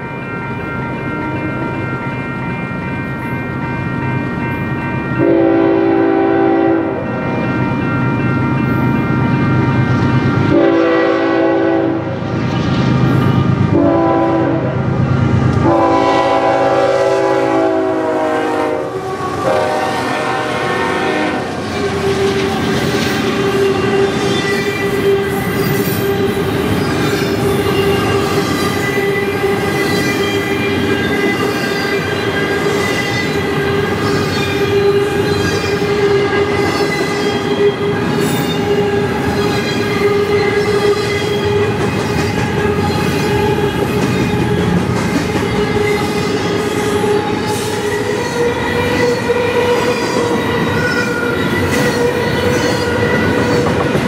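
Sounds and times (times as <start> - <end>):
locomotive air horn blasts: 5.2 - 7.0, 10.5 - 12.2, 13.7 - 14.9, 15.6 - 21.6
train wheels clattering: 20.6 - 54.0
high squeal from wheels: 21.6 - 54.0.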